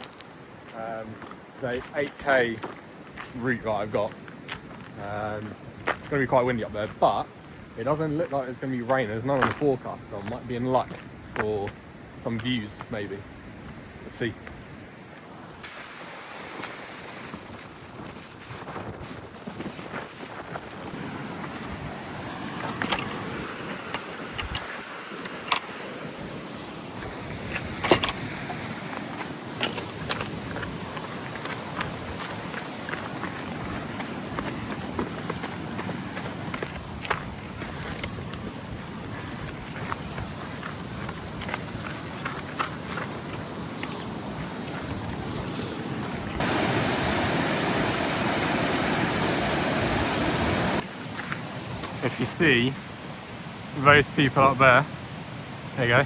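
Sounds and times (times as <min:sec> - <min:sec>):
stream water rushing: 0:00.0 - 0:12.7, 0:13.4 - 0:17.6, 0:20.9 - 0:56.0
wind buffeting microphone: 0:16.6 - 0:51.9.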